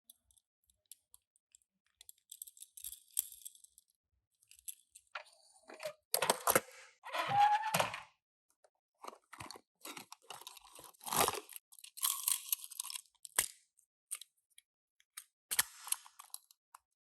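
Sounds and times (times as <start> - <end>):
brief squeak: 7.1 - 8.0
packaging crinkling and crunching: 9.0 - 13.0.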